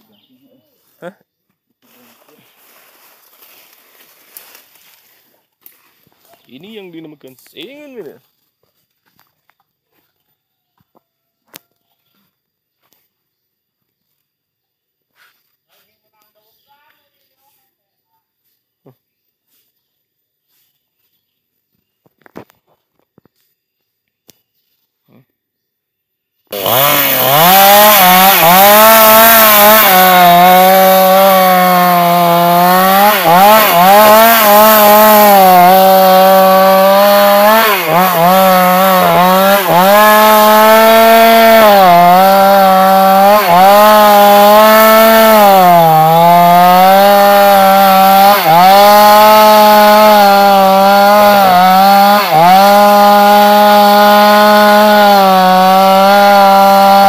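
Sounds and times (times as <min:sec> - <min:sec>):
chainsaw cutting wood: 0:01.8 - 0:06.8, 0:26.5 - 0:57.0.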